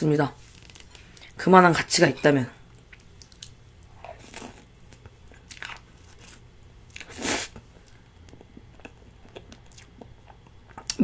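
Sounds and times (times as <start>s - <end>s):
person chewing: 2.8s - 11.0s.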